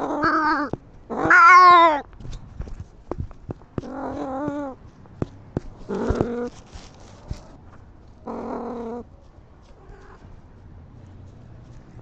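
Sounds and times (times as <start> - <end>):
cat yowling: 0.0 - 2.0.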